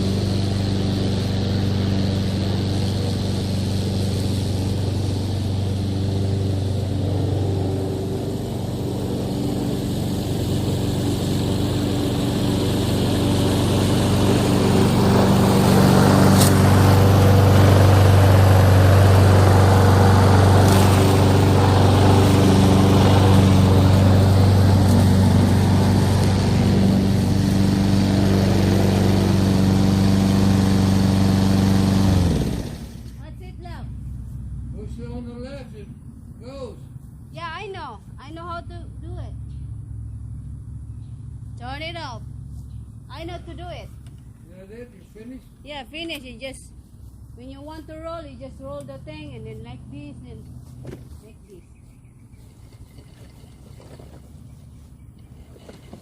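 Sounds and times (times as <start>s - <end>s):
lawn mower engine running: 0.0s - 56.0s.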